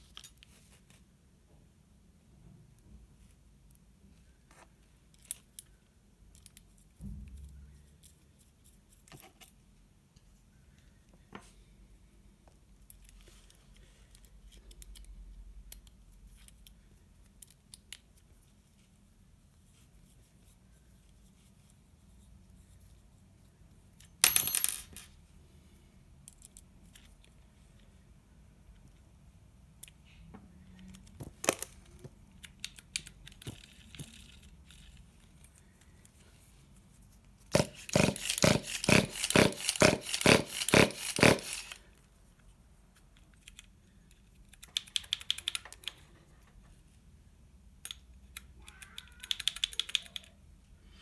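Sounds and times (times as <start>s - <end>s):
small metal parts clicking: 37.5s - 41.8s.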